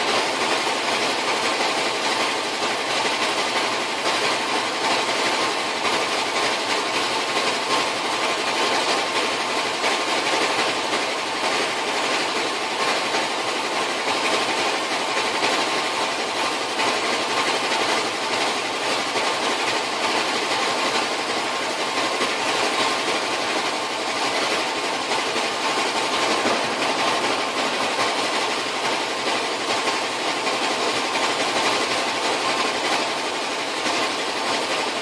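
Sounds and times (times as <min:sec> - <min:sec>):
torch flame hissing: 0:24.1 - 0:30.4.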